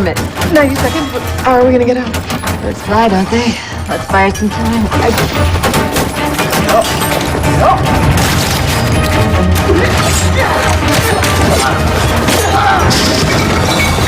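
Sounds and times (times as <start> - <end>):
dramatic action music: 0.0 - 14.0.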